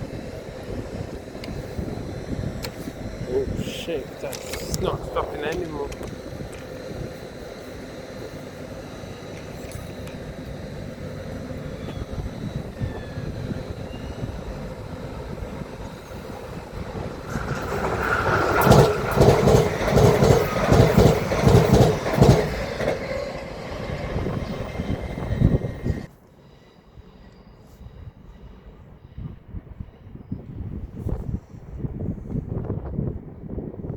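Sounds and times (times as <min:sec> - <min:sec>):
train rumble: 0:00.0 - 0:33.9
train wheels clattering over rail joints: 0:12.8 - 0:26.1.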